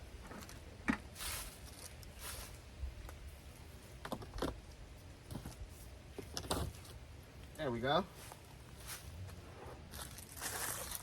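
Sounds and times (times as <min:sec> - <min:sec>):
rustling swishes: 0:01.2 - 0:02.6, 0:08.1 - 0:11.0.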